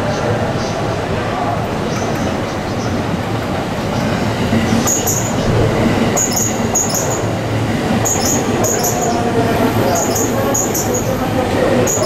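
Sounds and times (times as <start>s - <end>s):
train wheels rumbling on rail: 0.0s - 12.0s
high-pitched wheel squeals: 6.2s - 7.4s, 8.0s - 12.0s.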